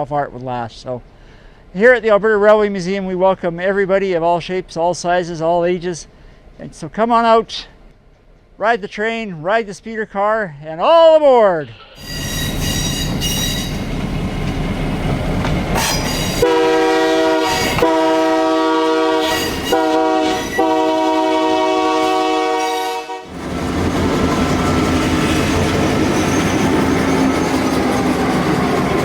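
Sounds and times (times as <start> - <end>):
locomotive rumbling past: 12.0 - 29.0
train air horn blasts: 16.4 - 23.5.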